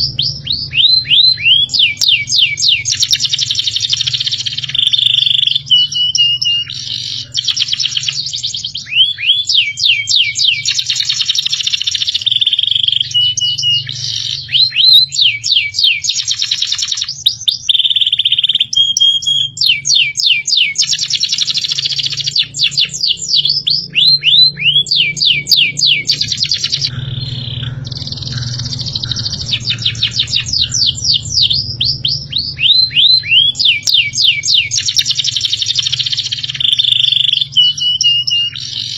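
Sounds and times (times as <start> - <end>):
songbird trilling: 0.0 - 38.9
low hum: 21.7 - 38.9.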